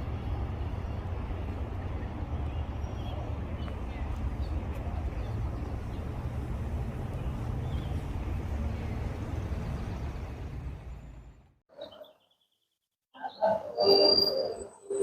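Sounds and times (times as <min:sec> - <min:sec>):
low traffic rumble: 0:00.0 - 0:11.6.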